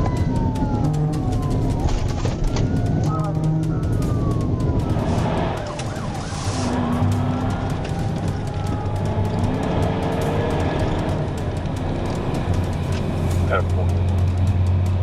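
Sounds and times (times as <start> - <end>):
siren yelp: 0.0 - 9.7
police siren wailing: 0.0 - 14.0
car engine at high speed: 0.0 - 15.0
road noise: 0.0 - 15.0.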